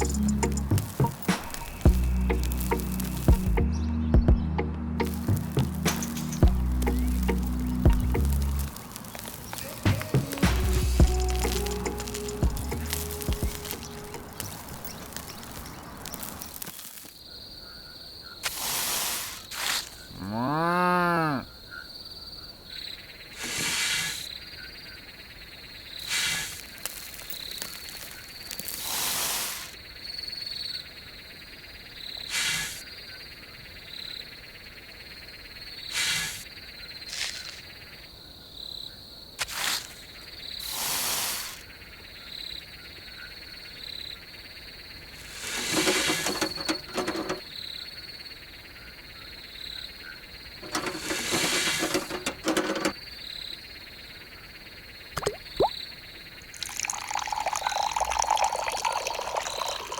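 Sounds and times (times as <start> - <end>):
insects trilling: 0.0 - 3.6, 5.0 - 59.9
noisy rustles: 0.0 - 3.7, 5.0 - 17.2, 45.1 - 47.5, 50.5 - 53.0
cow mooing: 20.1 - 21.5.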